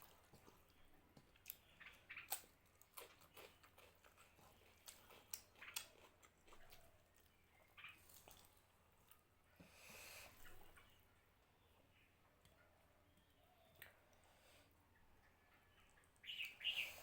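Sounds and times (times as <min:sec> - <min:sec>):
person chewing: 0:00.0 - 0:09.2.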